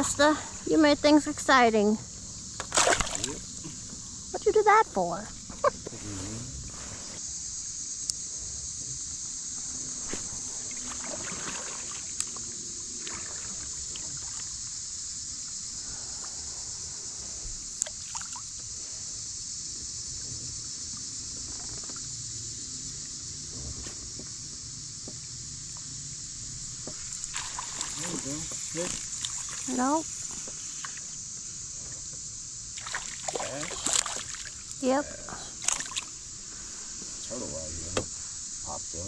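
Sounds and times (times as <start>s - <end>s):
steady high-pitched hiss: 0.0s - 39.0s
water trickling and lapping: 2.1s - 7.2s, 10.0s - 14.9s, 17.7s - 18.7s, 25.7s - 31.2s, 32.7s - 37.4s.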